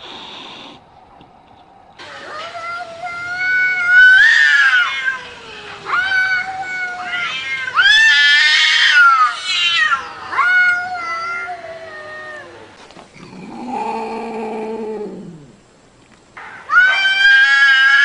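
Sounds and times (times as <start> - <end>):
cat yowling meows: 2.0 - 12.8, 16.7 - 18.0.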